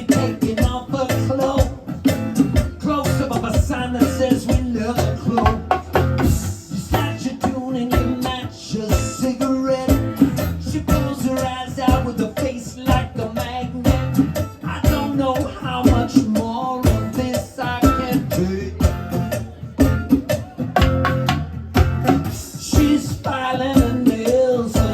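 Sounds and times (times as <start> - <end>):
guitar playing: 0.0 - 24.9
percussion hits: 0.0 - 24.9.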